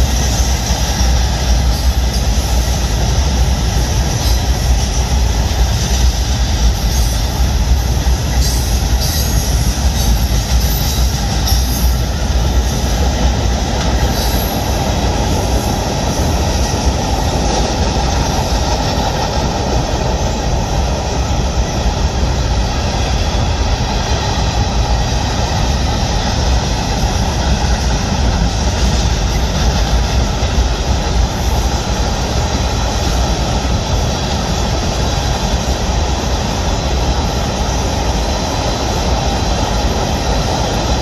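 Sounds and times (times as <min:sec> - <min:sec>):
train wheels clattering on rail: 0:00.0 - 0:41.0.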